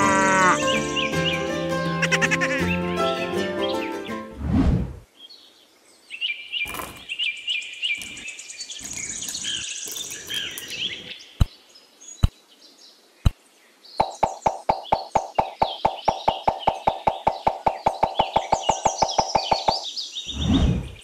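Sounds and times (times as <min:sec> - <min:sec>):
birds chirping and trilling: 0:00.0 - 0:04.4, 0:05.1 - 0:21.0
low whoosh: 0:04.4 - 0:05.0, 0:20.3 - 0:21.0
fast run of clicks: 0:14.0 - 0:19.8
sharp clicks: 0:14.0 - 0:19.8.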